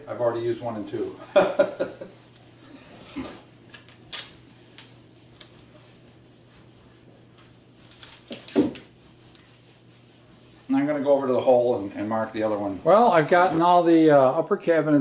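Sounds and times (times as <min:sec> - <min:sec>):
light rubbing: 0:04.6 - 0:13.8.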